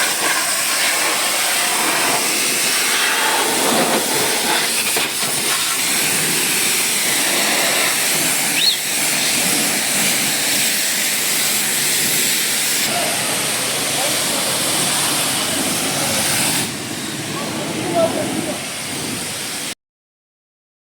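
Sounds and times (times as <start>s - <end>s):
pressure washer spraying water: 0.0s - 19.8s.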